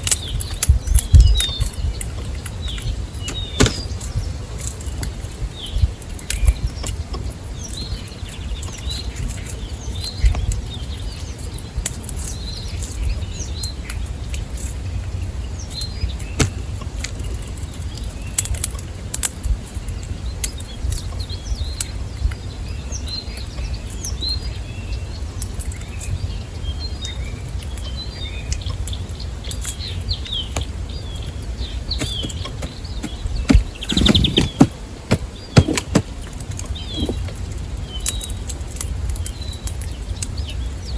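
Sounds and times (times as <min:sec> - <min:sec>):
small birds chirping: 0:00.0 - 0:40.9
knocks and flutters: 0:32.0 - 0:36.2.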